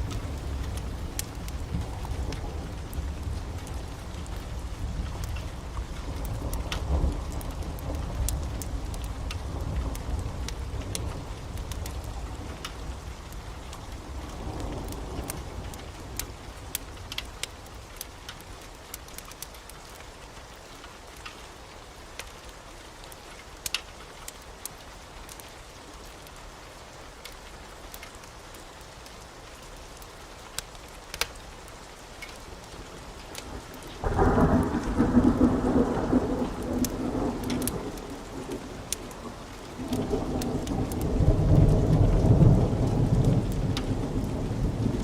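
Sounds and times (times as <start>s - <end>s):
thunder rumbling: 0.0s - 13.2s, 33.4s - 45.0s
heavy rain: 0.0s - 45.0s.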